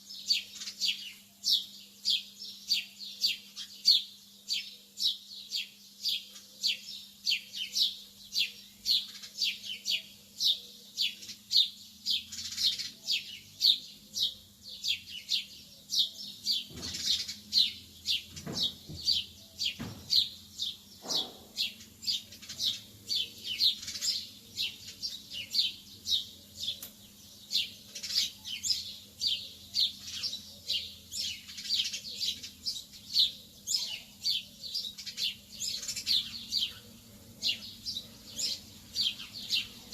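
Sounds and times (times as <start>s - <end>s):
birds chirping: 0.0s - 39.9s
soft knocks: 18.3s - 20.3s.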